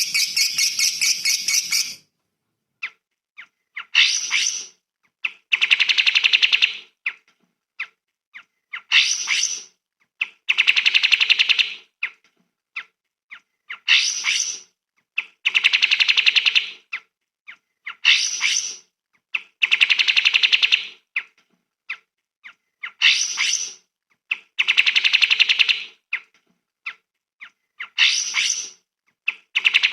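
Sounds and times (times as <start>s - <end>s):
songbird song with trill: 0.0s - 2.0s.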